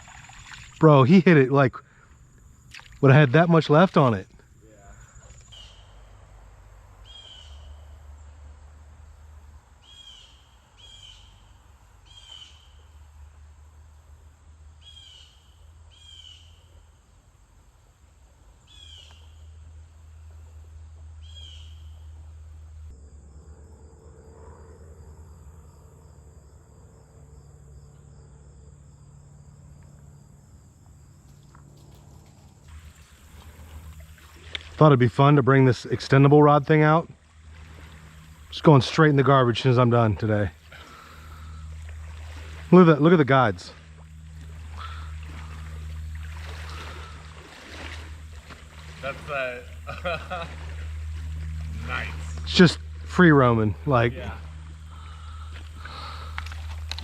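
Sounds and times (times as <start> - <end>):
high insect trill: 0.0 - 57.0
low rumble: 35.8 - 57.0.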